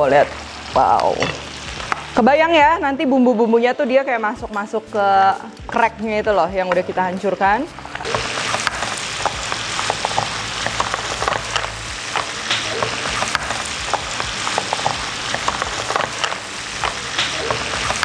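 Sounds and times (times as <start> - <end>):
crab frying in butter sauce: 0.0 - 2.2, 7.4 - 18.0
small pops and crackles: 7.9 - 18.0.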